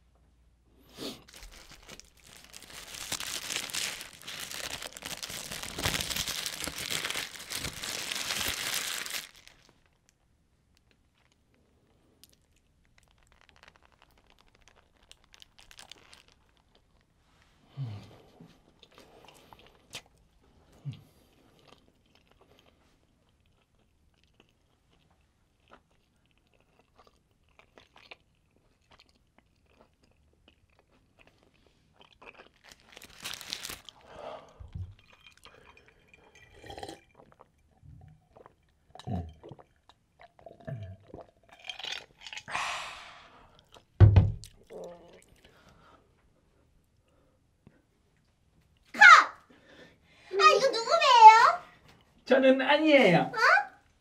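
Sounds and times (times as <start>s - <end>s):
chewing with wet mouth sounds: 10.8s - 17.1s, 18.7s - 34.0s, 34.6s - 42.5s
gulping a drink: 34.4s - 42.8s, 44.5s - 45.6s.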